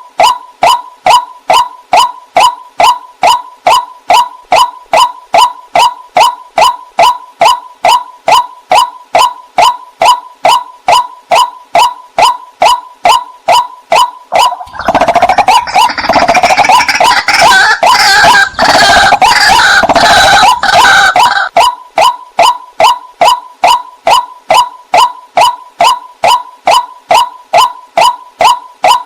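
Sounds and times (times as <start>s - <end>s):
waterhen calling: 10.5s - 23.0s.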